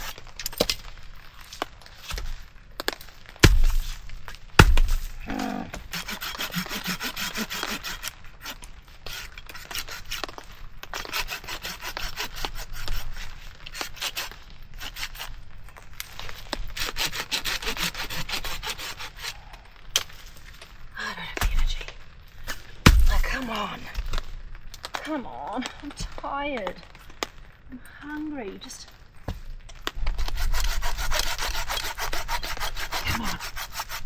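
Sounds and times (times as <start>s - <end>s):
hand saw cutting wood: 0.0s - 0.7s, 2.0s - 2.3s, 3.4s - 4.0s, 4.6s - 5.1s, 5.8s - 15.3s, 16.8s - 19.4s, 30.2s - 34.0s.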